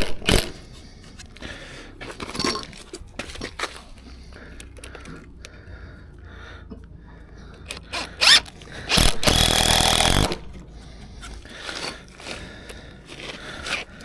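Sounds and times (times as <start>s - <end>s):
power drill driving screw: 0.0s - 0.6s, 7.7s - 10.5s, 13.6s - 13.9s.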